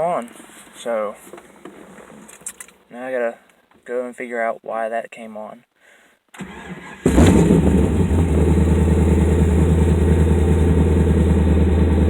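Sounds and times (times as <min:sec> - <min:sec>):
car engine starting and idling: 0:06.4 - 0:12.0.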